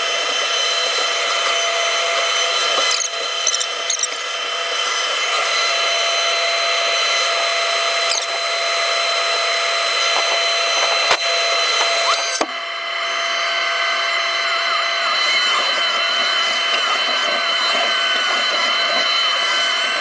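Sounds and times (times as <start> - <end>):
machine whine and hiss: 0.0 - 20.0.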